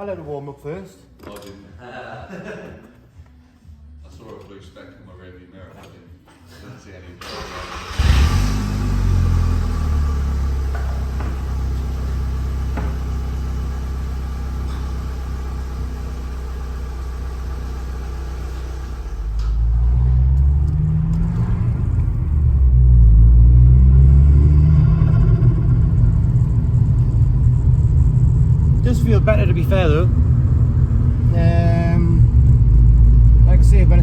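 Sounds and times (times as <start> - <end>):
car engine accelerating: 7.2 - 34.0.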